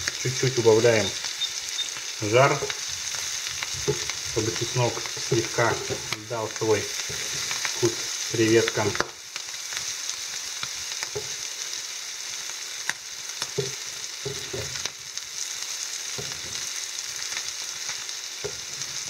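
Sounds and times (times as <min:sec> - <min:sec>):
shrimp sizzling in oil: 0:00.0 - 0:19.0
wooden spatula scraping pan: 0:02.2 - 0:06.2, 0:06.8 - 0:09.0.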